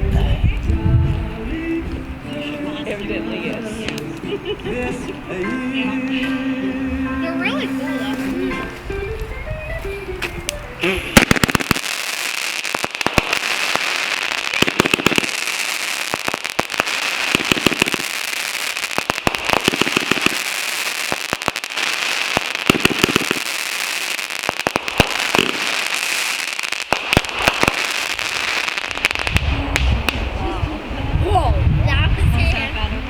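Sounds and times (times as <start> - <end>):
fireworks cracks and pops: 10.2 - 30.3
heavy firework bangs: 11.0 - 30.4.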